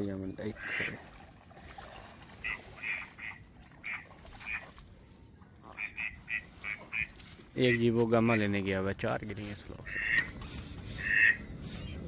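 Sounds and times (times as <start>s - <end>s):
ducks quacking: 0.5s - 1.1s, 2.4s - 4.7s, 5.6s - 8.5s, 9.8s - 11.5s.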